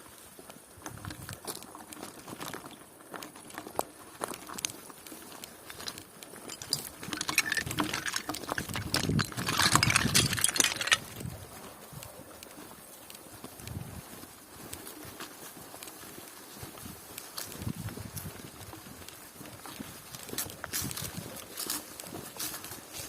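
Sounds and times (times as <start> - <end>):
bicycle rattling over bumps: 0.9 - 11.5.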